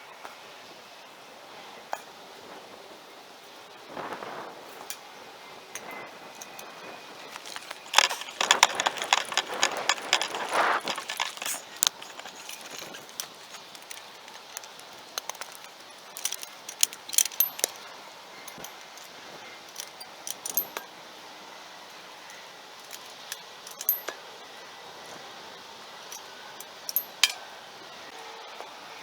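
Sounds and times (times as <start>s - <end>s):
metallic clinks and rattles: 6.3s - 20.9s, 22.3s - 24.2s, 26.1s - 27.5s.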